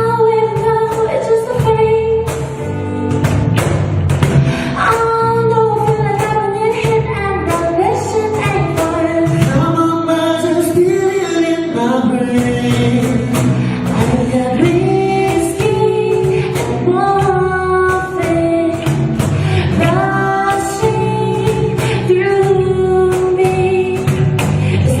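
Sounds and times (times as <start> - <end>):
woman singing: 0.0 - 2.9, 4.7 - 25.0
band music: 0.0 - 25.0.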